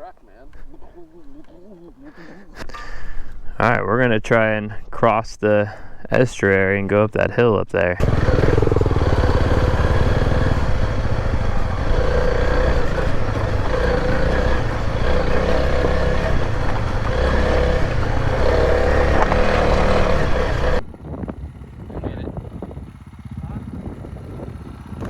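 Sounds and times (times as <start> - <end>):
motorcycle engine running: 8.0 - 25.0.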